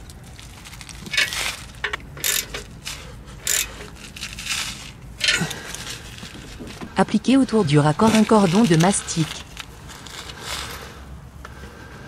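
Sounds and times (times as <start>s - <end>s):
wrench scraping and clicking: 1.1s - 7.0s.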